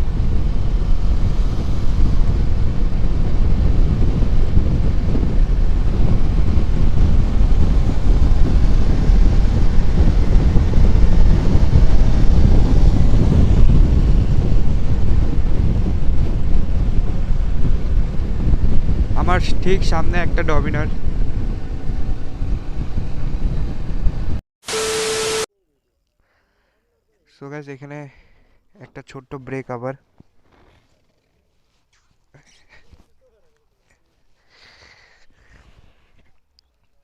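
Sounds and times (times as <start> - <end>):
wind buffeting microphone: 0.0 - 24.4.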